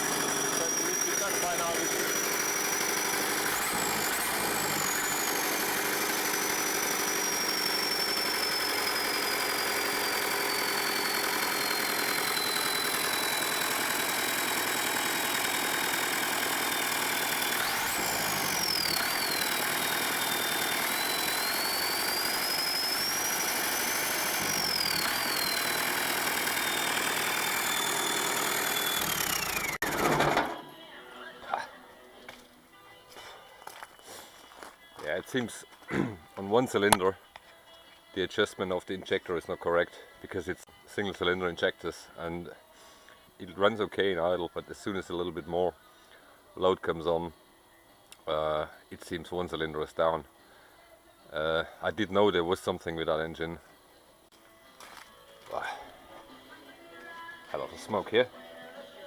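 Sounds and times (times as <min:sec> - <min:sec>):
diesel generator running: 0:00.0 - 0:31.6.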